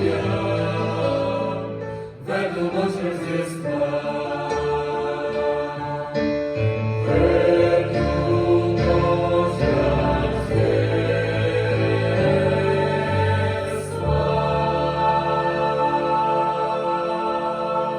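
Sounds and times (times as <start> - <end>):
choir singing long-held chords: 0.0 - 17.9.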